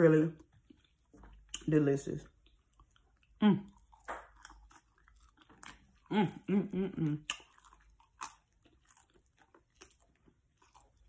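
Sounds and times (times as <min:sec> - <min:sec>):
person chewing with mouth smacks: 0:00.4 - 0:11.0
person humming: 0:06.1 - 0:07.3.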